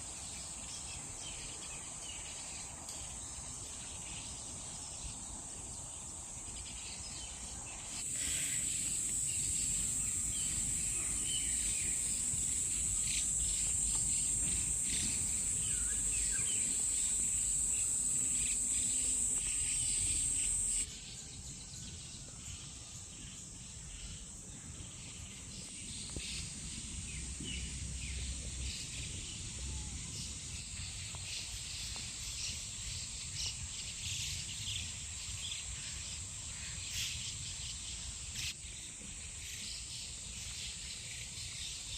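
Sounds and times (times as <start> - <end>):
insects droning: 0.0 - 21.2, 22.4 - 41.9
bird chirps: 8.0 - 20.9.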